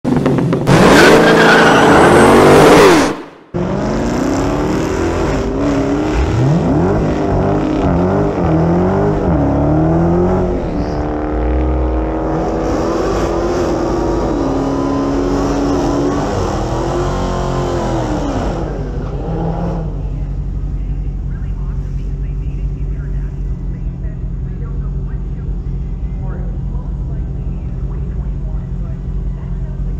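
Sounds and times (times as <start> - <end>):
car engine revving in burnout: 0.1 - 20.2.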